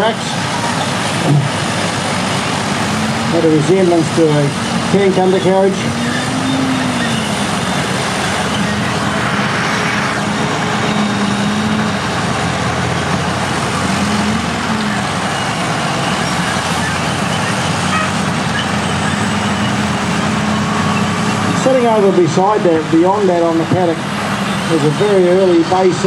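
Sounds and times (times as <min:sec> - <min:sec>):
bulldozer engines working: 0:00.0 - 0:26.0.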